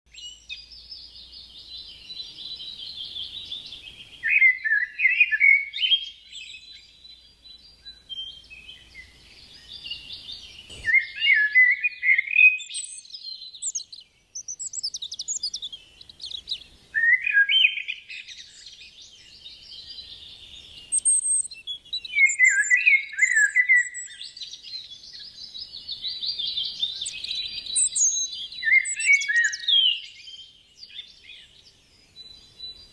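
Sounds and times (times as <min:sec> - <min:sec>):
songbird singing: 0:00.1 - 0:32.9.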